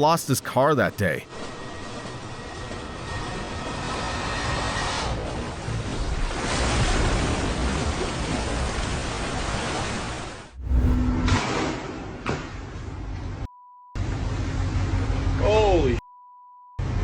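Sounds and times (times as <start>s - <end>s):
wind rushing: 10.5s - 11.4s
low rumble with steady hum: 10.6s - 11.4s.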